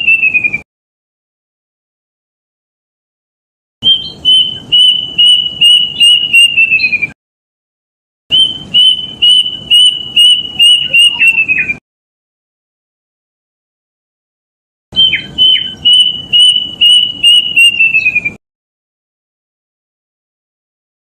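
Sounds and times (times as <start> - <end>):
cuckoo whistled song: 0.0 - 0.6, 3.8 - 7.2, 8.3 - 11.8, 15.0 - 18.4.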